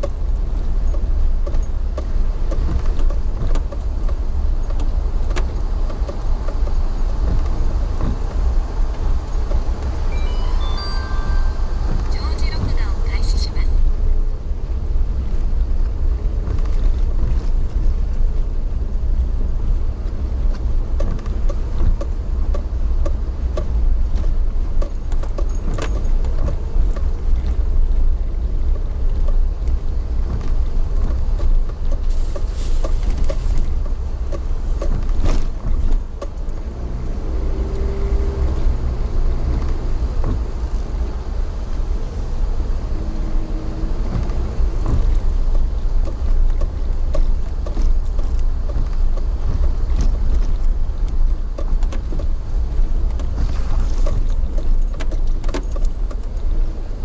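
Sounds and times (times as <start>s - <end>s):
vehicle interior rumble: 0.0s - 57.0s
humming tone: 10.0s - 13.8s
small rattles and clicks: 15.3s - 37.2s, 44.0s - 57.0s.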